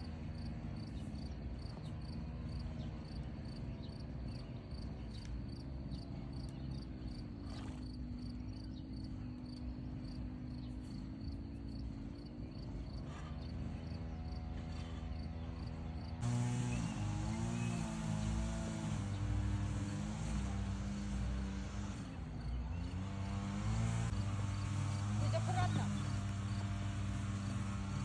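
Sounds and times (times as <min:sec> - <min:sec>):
crickets chirping: 0:00.3 - 0:14.5.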